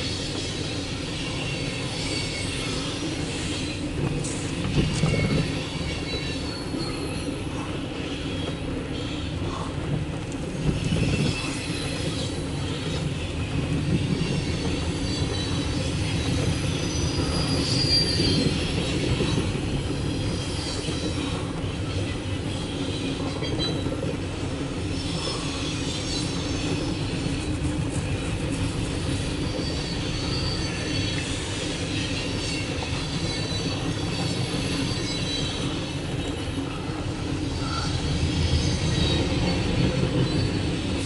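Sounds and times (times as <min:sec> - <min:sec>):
train cars rumbling past: 0:00.0 - 0:41.0
high-pitched wheel squeal: 0:14.0 - 0:21.5, 0:29.0 - 0:36.8.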